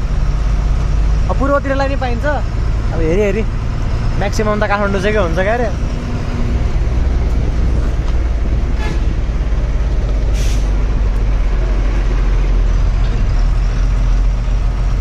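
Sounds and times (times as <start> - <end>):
truck diesel engine rumbling: 0.0 - 15.0
air release hiss: 10.3 - 10.8.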